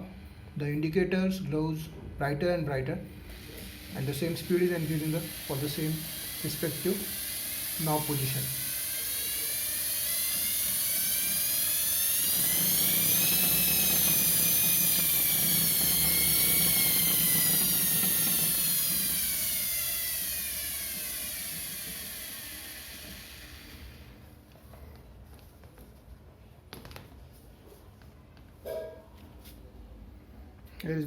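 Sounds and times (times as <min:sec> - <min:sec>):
washing machine motor whining: 0:03.2 - 0:24.3.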